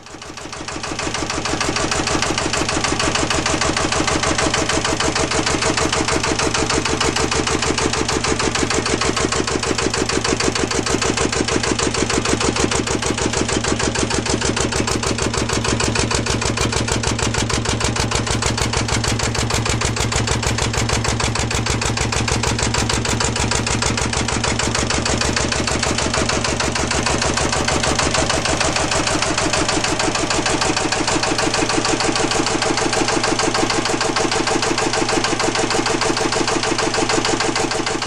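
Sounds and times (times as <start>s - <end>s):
diesel engine running: 0.2s - 38.0s.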